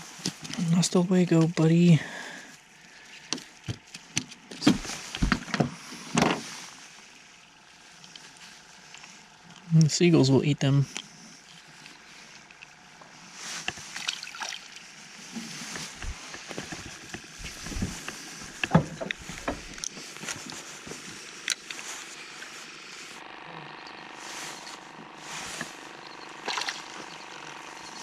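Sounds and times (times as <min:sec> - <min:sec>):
knocks clicks and rustling: 0:15.8 - 0:19.9.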